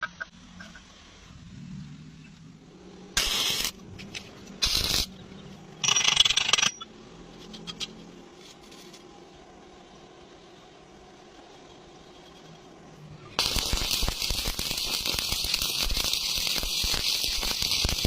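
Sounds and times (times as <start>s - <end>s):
arc welding crackling hiss: 3.2s - 5.2s, 13.4s - 18.0s.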